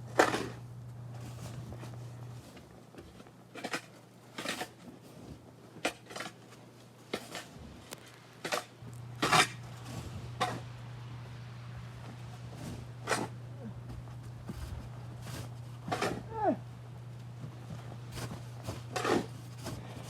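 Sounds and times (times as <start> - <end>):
low hum: 8.8 - 20.0
snow shovel scraping snow: 9.2 - 13.4, 14.2 - 16.5, 17.7 - 20.0.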